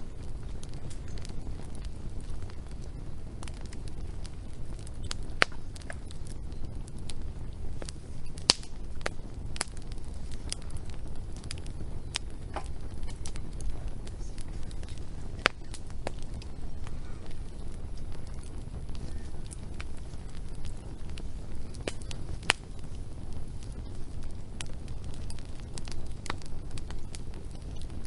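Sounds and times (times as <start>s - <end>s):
low rumble: 0.0s - 28.0s
sharp pops of fire: 0.0s - 28.0s
wood fire crackling: 0.0s - 28.0s.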